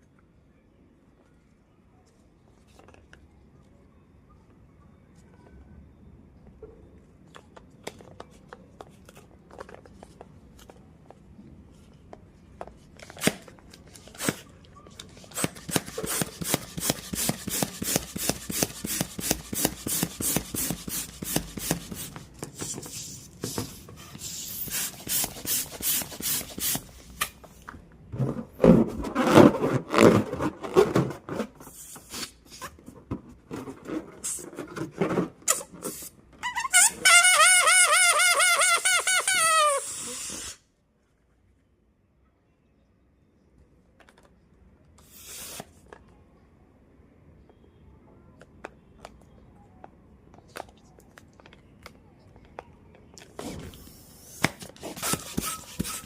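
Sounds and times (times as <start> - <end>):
balloon squeaking: 28.8 - 30.8, 35.4 - 40.6, 45.1 - 45.7, 54.1 - 56.0
rubbing balloon: 54.8 - 56.0.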